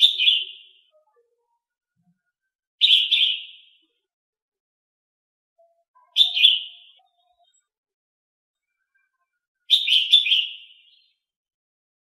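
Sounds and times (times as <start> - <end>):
small songbird chirping: 0.0 - 1.6, 2.8 - 4.0, 5.6 - 7.7, 8.6 - 11.3.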